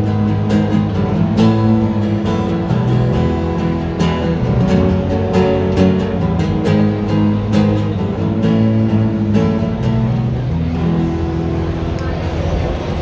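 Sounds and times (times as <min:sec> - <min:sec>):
strummed acoustic guitar: 0:00.0 - 0:12.9.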